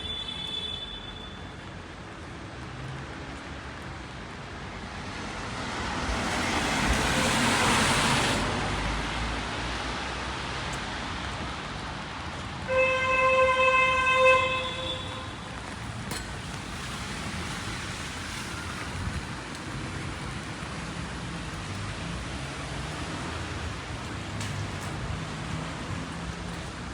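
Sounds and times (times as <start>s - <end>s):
rain on wet street: 0.0s - 26.9s
vehicle horn honk: 12.7s - 15.5s.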